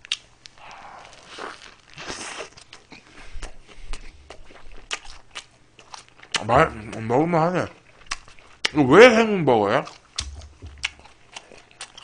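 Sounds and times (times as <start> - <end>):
man chewing with mouth open: 0.0 - 8.8, 9.7 - 12.0
wet mouth clicks and smacks: 10.2 - 12.0.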